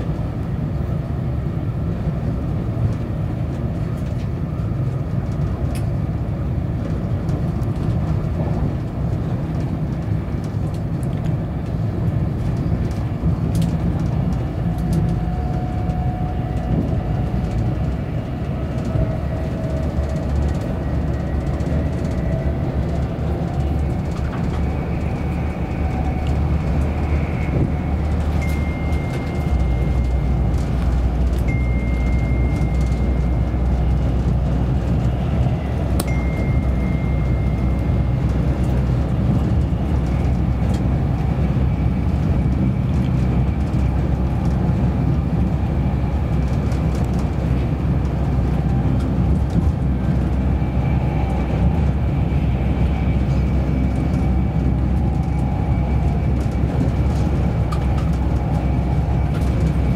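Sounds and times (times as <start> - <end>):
train carriage rumble: 0.0 - 59.9.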